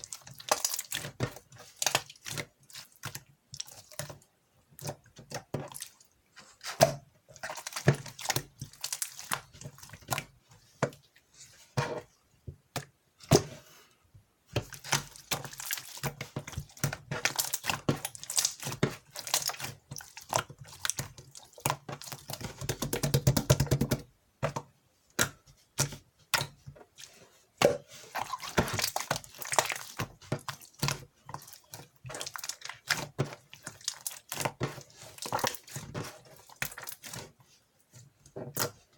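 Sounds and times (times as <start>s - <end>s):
slime squished by hand: 27.6s - 37.4s.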